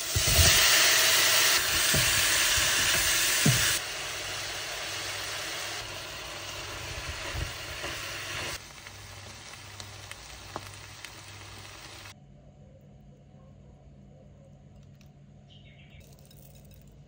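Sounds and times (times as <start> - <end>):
food sizzling in a wok: 0.0 - 12.2.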